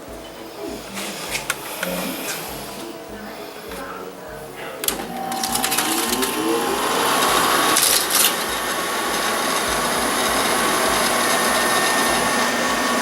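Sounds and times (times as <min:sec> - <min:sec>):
faint hum: 0:00.0 - 0:13.0
air conditioner fan rushing: 0:04.8 - 0:13.0.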